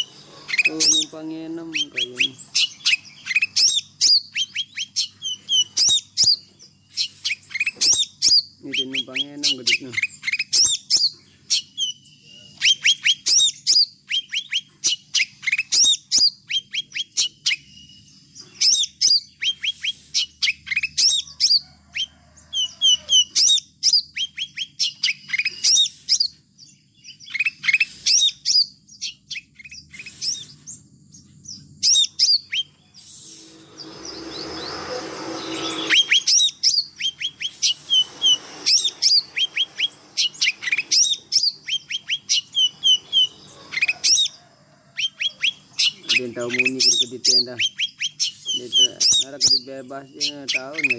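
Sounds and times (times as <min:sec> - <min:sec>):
small songbirds chirping: 0:00.0 - 0:50.9
rushing noise with low hum: 0:33.1 - 0:36.6, 0:37.3 - 0:40.6.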